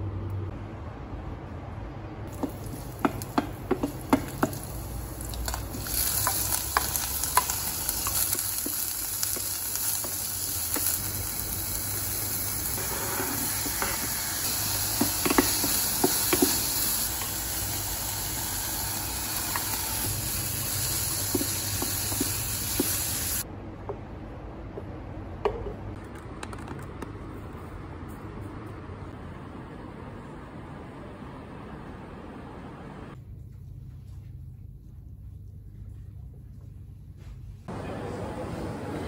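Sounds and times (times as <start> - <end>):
wooden spoon knocking pan: 2.3 - 4.8, 14.9 - 16.8
food sizzling in frying pan: 2.3 - 23.4.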